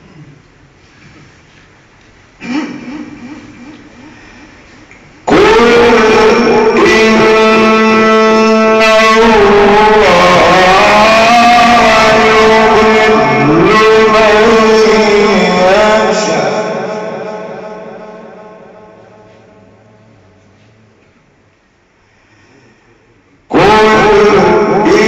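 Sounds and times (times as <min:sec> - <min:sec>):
man reciting melodically: 0:04.9 - 0:20.7, 0:23.4 - 0:25.0.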